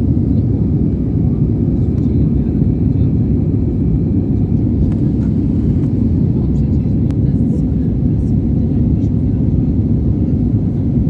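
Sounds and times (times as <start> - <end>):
airliner cabin roar in flight: 0.0 - 11.0.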